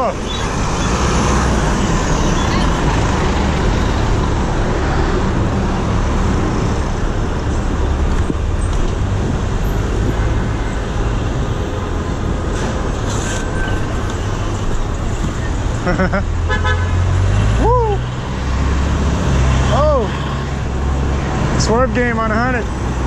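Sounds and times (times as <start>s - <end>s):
city traffic noise: 0.0s - 23.0s
rushing wind: 0.0s - 23.0s.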